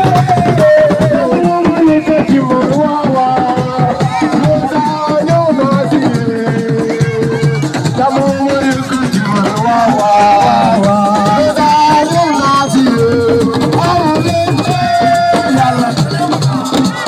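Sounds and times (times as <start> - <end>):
hand drums: 0.0 - 17.0
voices singing: 0.0 - 17.0.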